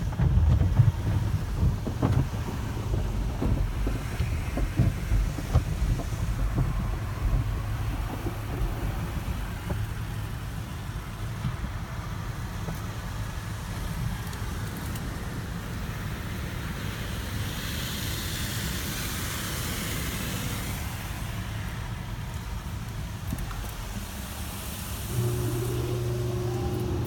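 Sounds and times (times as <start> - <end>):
car wash equipment rumbling: 0.0 - 27.0
spray hissing: 24.9 - 27.0.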